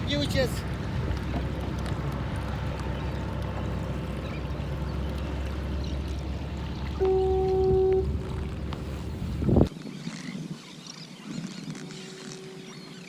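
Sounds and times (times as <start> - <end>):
water splashing against kayak hull: 0.0 - 9.7.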